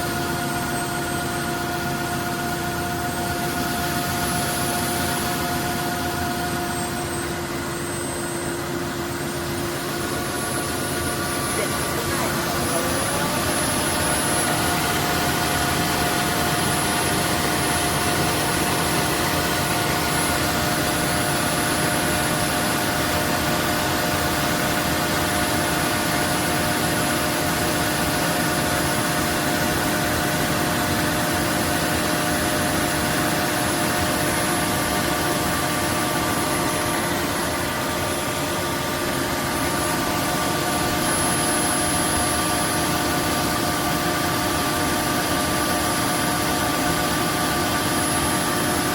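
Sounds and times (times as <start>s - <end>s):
vacuum motor running: 0.2s - 48.7s
high thin whine: 2.0s - 22.9s.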